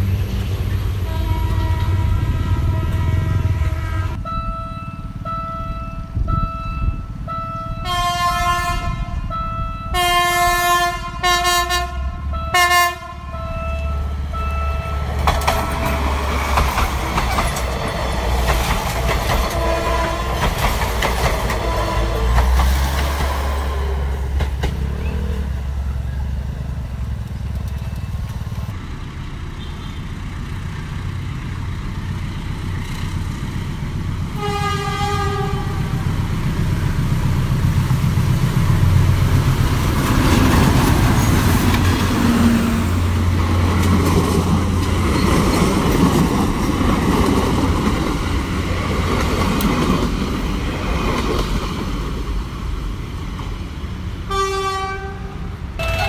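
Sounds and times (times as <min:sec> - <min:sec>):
train wheels on rails: 0:00.0 - 0:04.4, 0:13.5 - 0:56.0
train horn: 0:01.0 - 0:15.0, 0:19.5 - 0:20.5, 0:21.5 - 0:22.5, 0:34.4 - 0:36.0, 0:54.3 - 0:56.0
diesel engine rumble: 0:13.0 - 0:50.9.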